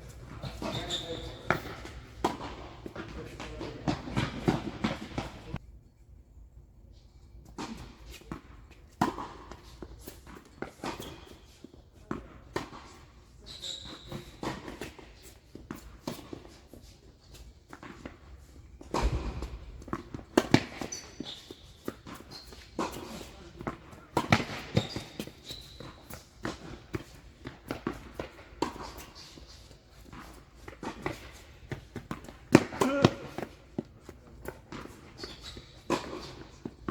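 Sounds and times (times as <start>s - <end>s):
footsteps: 0.0s - 5.6s
short high squeaks: 0.4s - 1.7s, 24.8s - 26.1s
tennis ball struck and bouncing: 0.4s - 5.5s, 18.8s - 29.2s, 30.0s - 36.9s.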